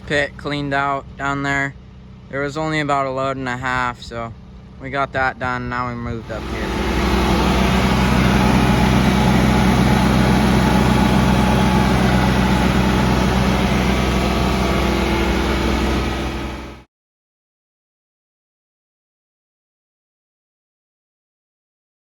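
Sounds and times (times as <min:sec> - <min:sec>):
tractor engine running: 0:06.2 - 0:16.9.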